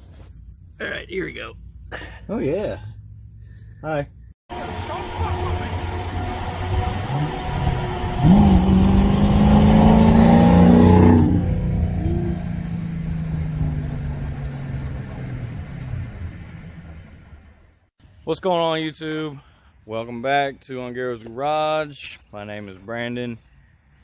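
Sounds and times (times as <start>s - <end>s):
car engine revving: 4.5s - 17.8s.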